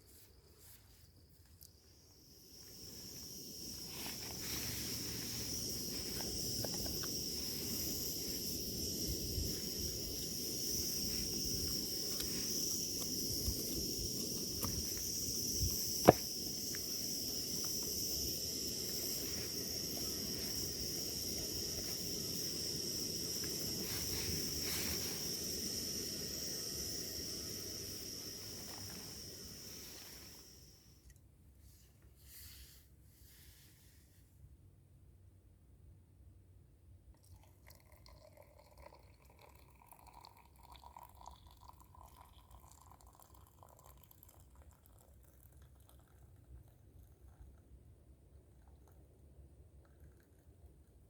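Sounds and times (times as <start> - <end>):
insects chirring: 0.0 - 31.0, 37.4 - 44.1.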